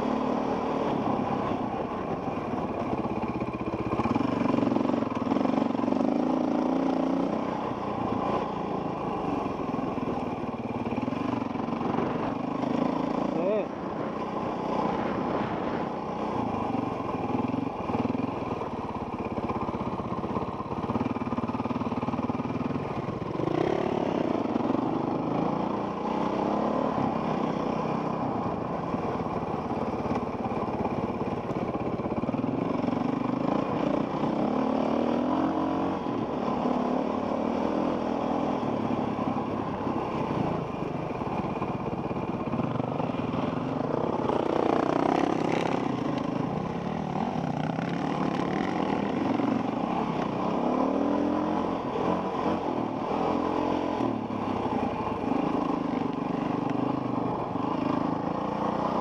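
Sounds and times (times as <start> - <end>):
dirt bike engine revving: 23.3 - 27.8, 43.6 - 46.0, 46.6 - 59.0.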